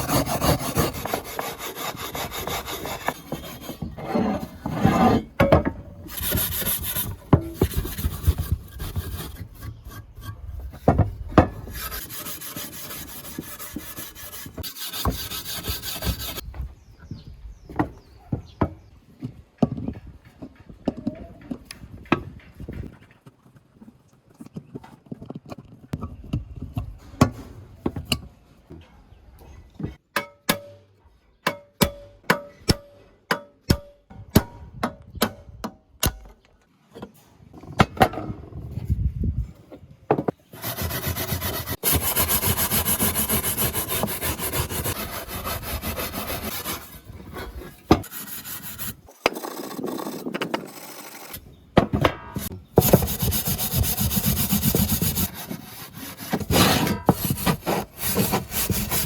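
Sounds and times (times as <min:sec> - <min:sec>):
abrasive scraping on metal: 0:55.2 - 0:59.0.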